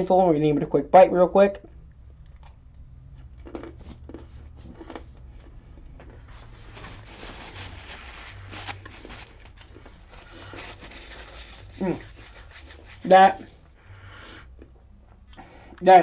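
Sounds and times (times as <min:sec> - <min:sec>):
chewing and crunching: 0:01.6 - 0:13.8.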